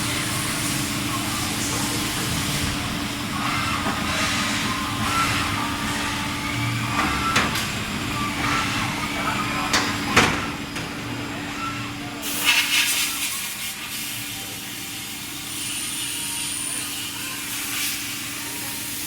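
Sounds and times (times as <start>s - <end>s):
lathe running hum: 0.0s - 12.2s.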